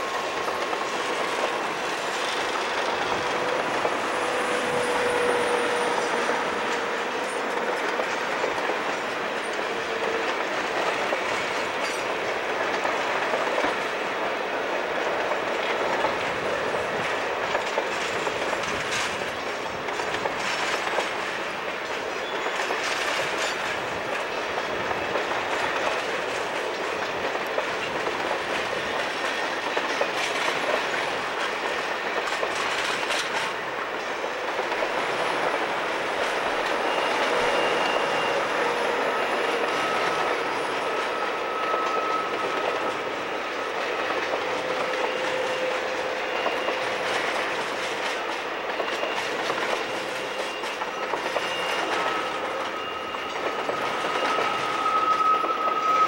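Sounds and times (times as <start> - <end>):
train wheels clacking over rail joints: 0.0 - 56.0
faint wheel squeal: 36.3 - 56.0.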